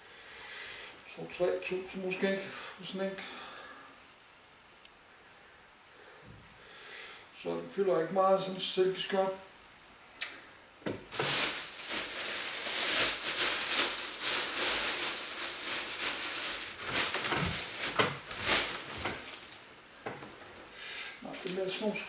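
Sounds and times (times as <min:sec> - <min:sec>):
clothes rustling: 0:10.9 - 0:22.0.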